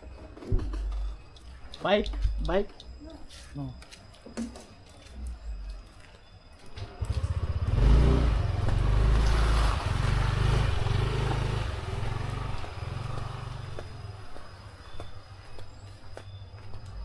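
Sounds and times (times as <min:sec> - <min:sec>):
motorcycle passing by: 0:06.8 - 0:15.0.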